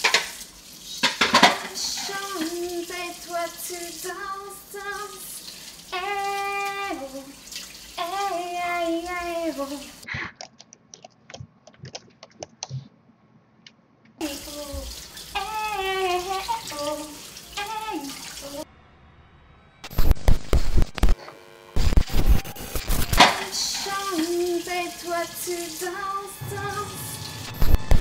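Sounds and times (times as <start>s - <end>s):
kitchen tap running: 0.0s - 10.0s, 14.2s - 18.6s, 23.1s - 26.0s
dishes clinking: 1.0s - 1.8s
woman singing: 1.5s - 7.4s, 8.0s - 10.0s, 14.2s - 18.6s, 23.2s - 27.4s.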